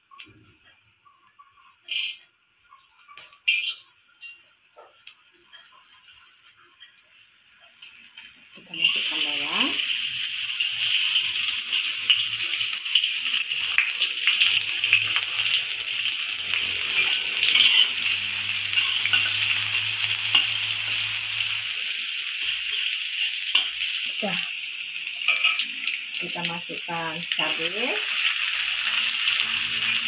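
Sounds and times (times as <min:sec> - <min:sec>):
shallots sizzling in hot oil: 0:00.0 - 0:30.0
metal spatula scraping a wok: 0:16.9 - 0:21.0.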